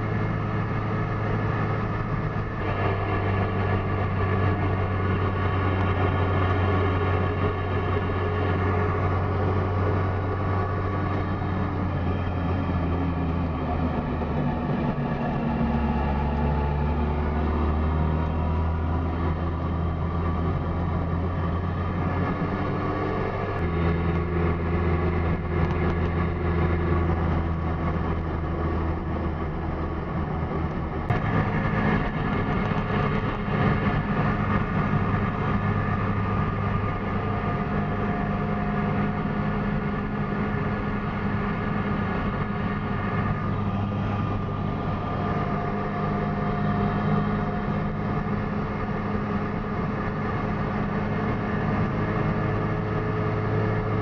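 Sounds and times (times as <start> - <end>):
road and wind noise: 0.0 - 54.0
click: 25.6 - 26.2.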